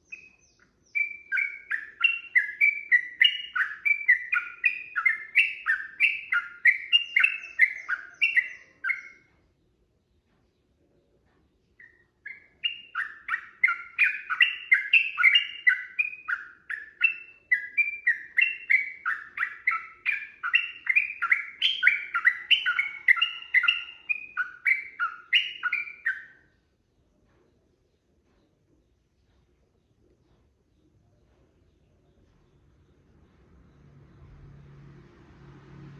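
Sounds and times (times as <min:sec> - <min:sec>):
bulbul singing: 0:00.0 - 0:09.6, 0:11.6 - 0:27.0.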